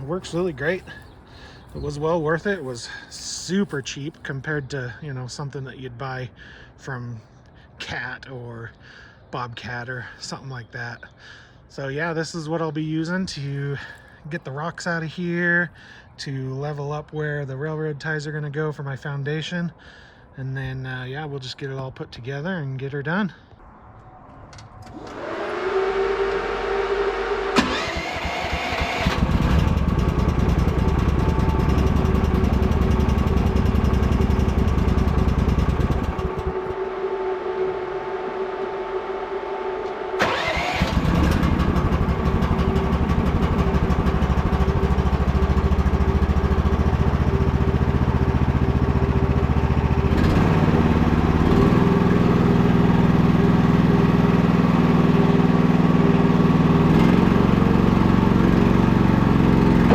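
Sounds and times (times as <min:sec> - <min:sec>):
steady whine: 0:23.9 - 0:29.2, 0:29.8 - 0:44.0
small petrol engine running: 0:24.9 - 0:59.9.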